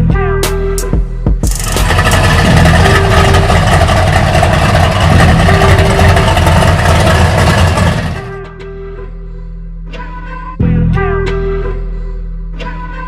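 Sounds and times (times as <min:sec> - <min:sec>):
truck engine running hard: 0:01.5 - 0:08.6.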